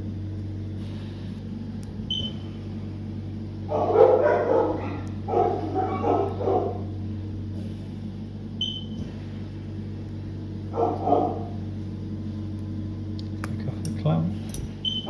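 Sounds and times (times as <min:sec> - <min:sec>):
steady low hum: 0:00.0 - 0:15.0
dog barking: 0:03.7 - 0:06.9, 0:10.7 - 0:11.6.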